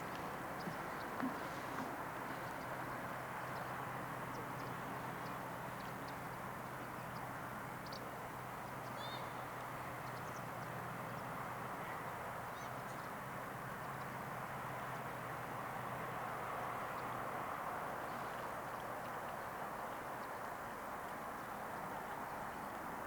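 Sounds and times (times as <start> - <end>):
small birds chirping: 0.1 - 11.3.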